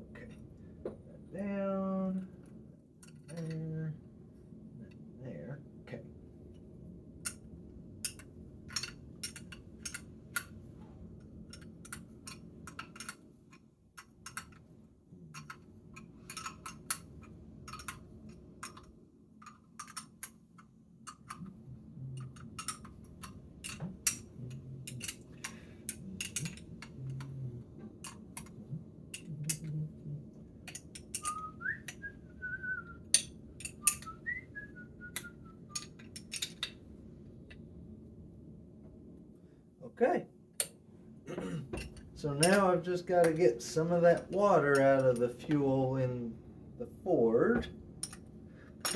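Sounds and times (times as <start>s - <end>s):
small metal parts clinking: 8.0s - 10.5s, 11.5s - 14.6s, 15.3s - 21.5s, 22.2s - 27.3s, 30.6s - 31.8s, 33.1s - 34.2s, 35.2s - 36.8s, 48.0s - 48.9s
person whistling: 31.2s - 33.1s, 33.8s - 35.8s.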